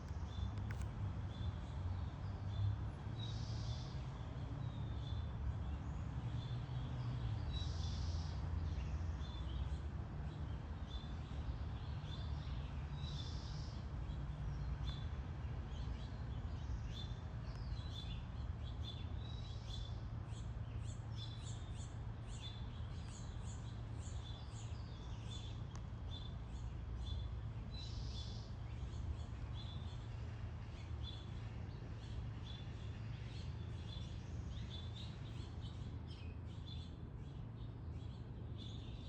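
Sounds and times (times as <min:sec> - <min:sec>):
low rumble of background noise: 0:00.0 - 0:39.0.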